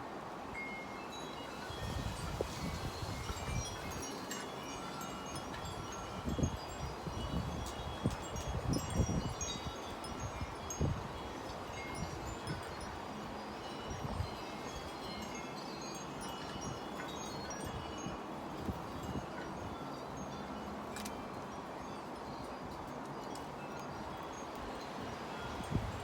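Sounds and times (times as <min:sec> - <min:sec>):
wind chimes ringing: 0:00.5 - 0:26.0
wind buffeting microphone: 0:01.6 - 0:13.2, 0:24.0 - 0:26.0.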